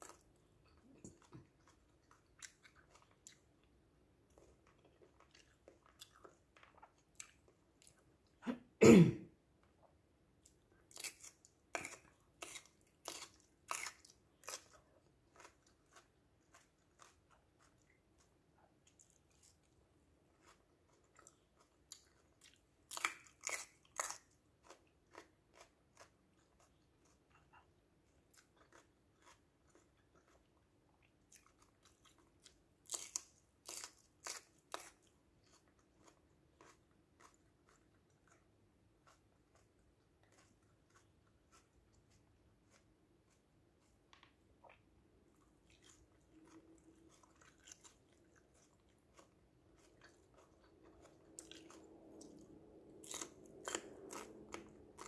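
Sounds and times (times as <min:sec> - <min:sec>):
crunching bell pepper: 0:10.5 - 0:19.7, 0:20.4 - 0:27.5, 0:31.2 - 0:44.3, 0:45.6 - 0:55.0.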